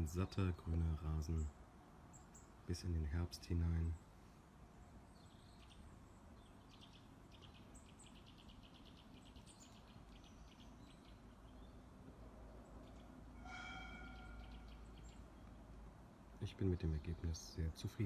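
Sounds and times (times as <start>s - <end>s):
faint background hiss: 0.0s - 13.5s, 14.1s - 18.0s
small birds chirping and trilling: 0.0s - 18.0s.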